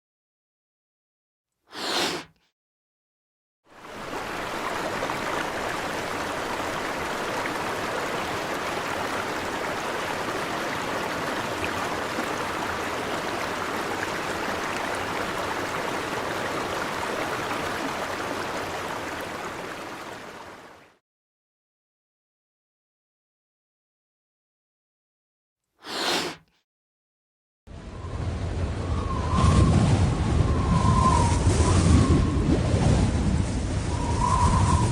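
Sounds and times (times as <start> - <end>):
flowing water rushing: 3.7 - 20.9.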